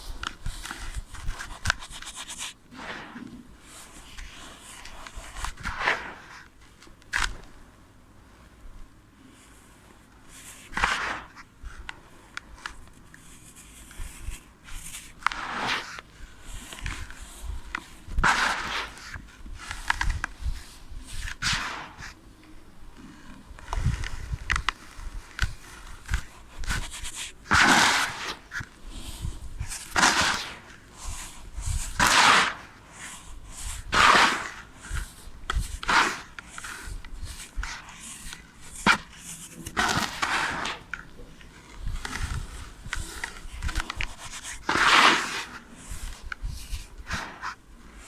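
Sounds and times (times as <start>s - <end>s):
sand crunching by hand: 15.1s - 22.2s, 23.7s - 48.0s.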